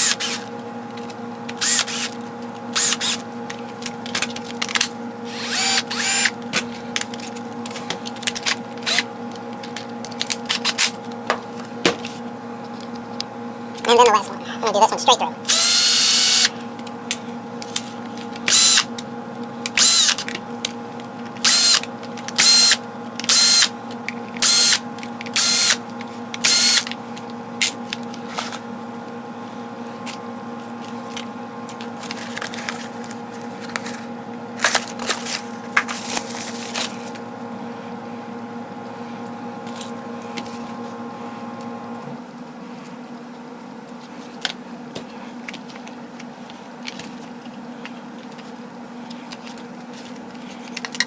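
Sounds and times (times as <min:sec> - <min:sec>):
cordless drill spinning: 0:00.0 - 0:00.5, 0:01.6 - 0:02.2, 0:02.8 - 0:03.2, 0:05.3 - 0:06.4, 0:15.5 - 0:16.5, 0:18.5 - 0:18.9, 0:19.8 - 0:20.2, 0:21.4 - 0:21.8, 0:22.4 - 0:23.7, 0:24.4 - 0:24.8, 0:25.4 - 0:25.8, 0:26.4 - 0:26.9.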